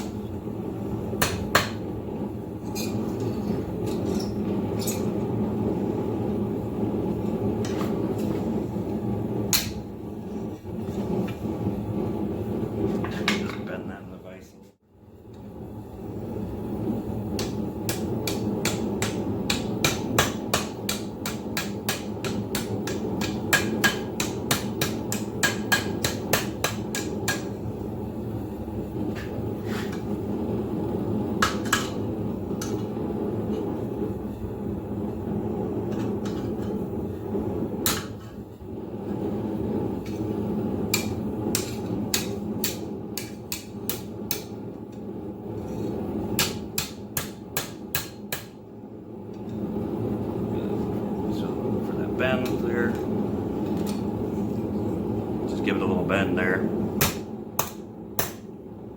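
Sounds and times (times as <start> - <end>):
forge burner roaring: 0.0 - 58.9
hammer striking steel on anvil: 1.2 - 1.8, 9.5 - 9.8, 17.4 - 27.6, 40.9 - 44.5, 46.4 - 48.6, 57.0 - 58.5.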